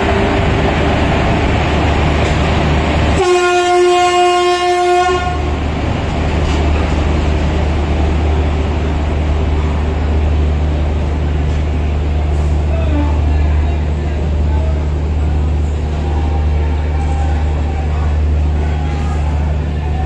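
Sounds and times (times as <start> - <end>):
rumble of passenger coaches rolling: 0.0 - 20.0
locomotive horn blast: 3.2 - 5.6, 12.8 - 13.4.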